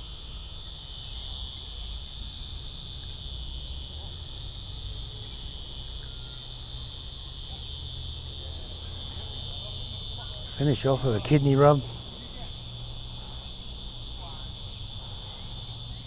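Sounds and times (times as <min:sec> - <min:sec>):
insect chorus trilling: 0:00.0 - 0:16.0.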